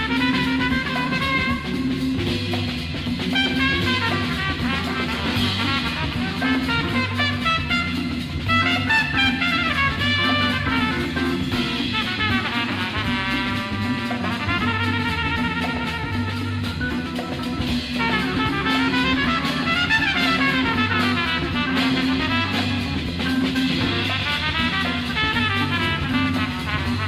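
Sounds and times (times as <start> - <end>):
brass horn melody: 0.0 - 27.0
drum kit: 0.0 - 27.0
repeating bass line: 0.0 - 27.0.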